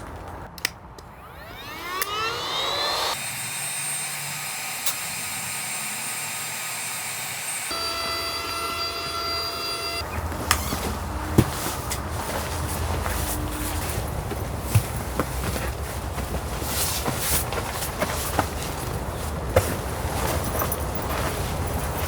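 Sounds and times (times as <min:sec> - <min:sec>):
electric air pump motor whine: 0:01.0 - 0:13.9.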